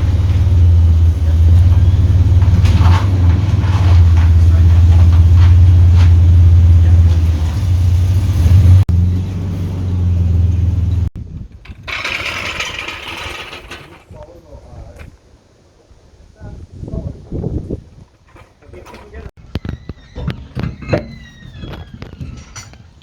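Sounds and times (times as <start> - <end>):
vehicle engine running: 0.0 - 11.1.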